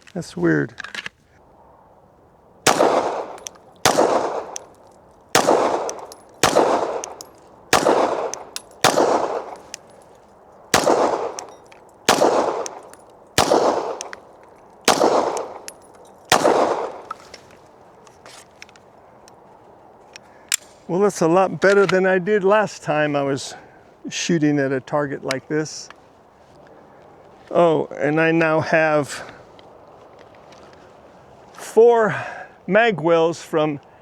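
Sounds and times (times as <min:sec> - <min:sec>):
pistol shots with ringing echo: 0:02.6 - 0:10.1, 0:10.7 - 0:17.4.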